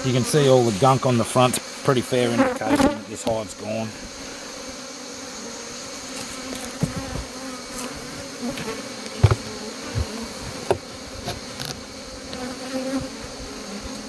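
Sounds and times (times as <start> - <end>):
bees buzzing: 0.0 - 14.0
knocks from wooden hive box: 6.6 - 7.4, 8.5 - 11.8.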